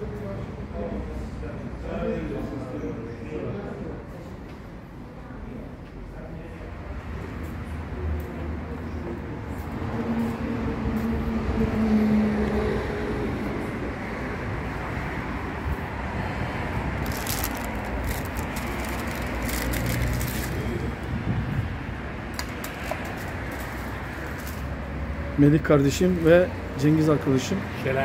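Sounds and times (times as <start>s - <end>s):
motor vehicle running: 16.8s - 21.6s, 22.4s - 24.9s.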